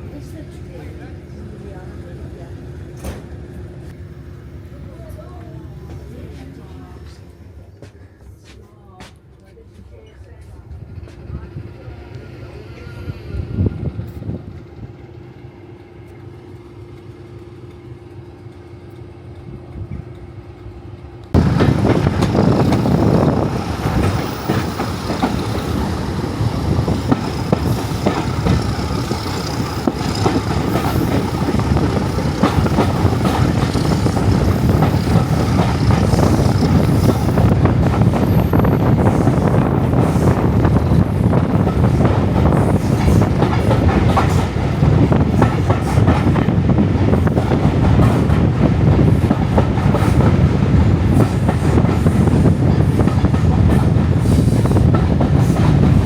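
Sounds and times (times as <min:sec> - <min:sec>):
train wheels clattering on rails: 0:21.3 - 0:56.0.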